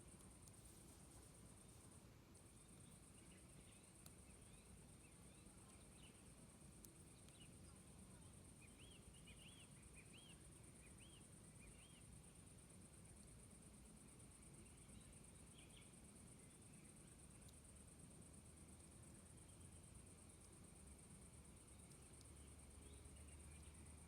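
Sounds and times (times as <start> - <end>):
high insect-like hiss: 0.0 - 24.0
faint clicks: 0.1 - 1.1, 2.3 - 4.4, 5.6 - 7.5, 21.6 - 23.8.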